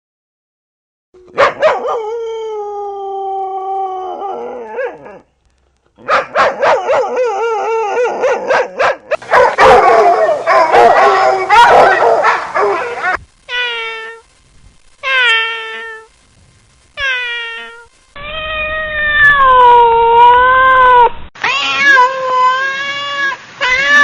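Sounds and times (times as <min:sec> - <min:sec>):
dog howling: 0:01.2 - 0:05.2, 0:06.0 - 0:13.2.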